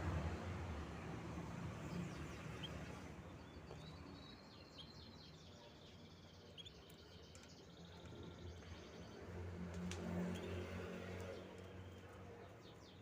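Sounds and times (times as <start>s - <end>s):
canaries chirping: 1.9s - 7.5s.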